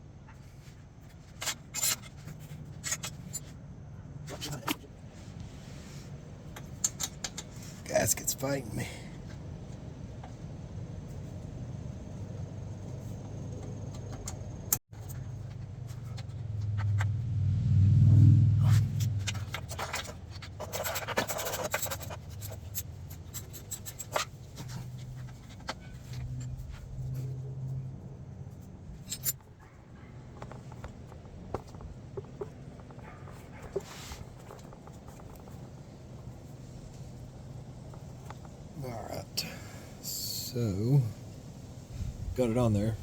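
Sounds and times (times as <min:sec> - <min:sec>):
steady low hum: 0:00.0 - 0:33.6
metal-on-metal scraping: 0:16.0 - 0:27.5
loud low rumble: 0:16.5 - 0:19.8.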